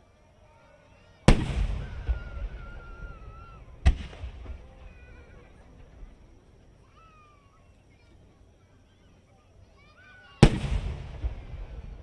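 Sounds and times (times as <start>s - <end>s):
faint firework whistling: 0.0s - 12.0s
firework boom echoing: 1.3s - 6.6s, 10.4s - 12.0s.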